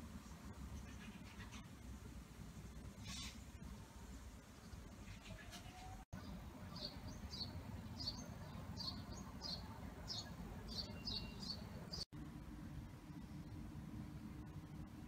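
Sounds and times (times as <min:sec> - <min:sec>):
small bird chirping: 0:03.0 - 0:03.4, 0:06.7 - 0:12.1
low outdoor rumble: 0:11.6 - 0:15.0.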